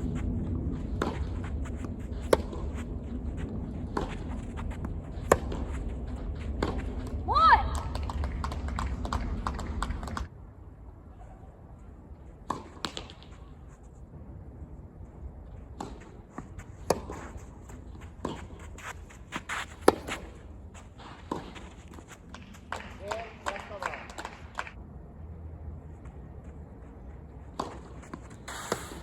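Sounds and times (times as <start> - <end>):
footsteps on court: 0.0 - 10.3, 15.5 - 23.8, 25.9 - 29.0
tennis ball bouncing: 0.9 - 7.2, 16.8 - 18.7, 19.8 - 20.4, 21.2 - 21.6, 27.6 - 29.0
racket striking tennis ball: 2.2 - 2.8, 3.8 - 5.8, 16.8 - 17.2, 19.8 - 20.4, 27.6 - 29.0.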